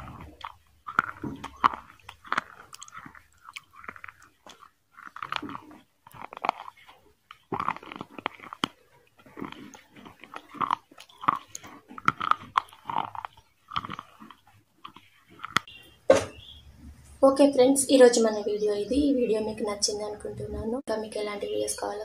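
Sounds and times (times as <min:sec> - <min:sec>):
teeth and lip clicks: 0:00.0 - 0:16.6
wet crunchy chewing: 0:00.0 - 0:17.0.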